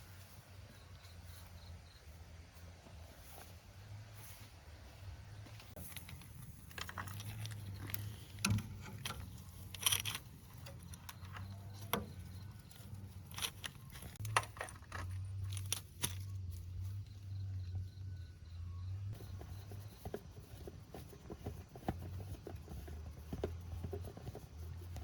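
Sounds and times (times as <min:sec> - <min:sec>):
light clicks and knocks: 0:05.6 - 0:16.3.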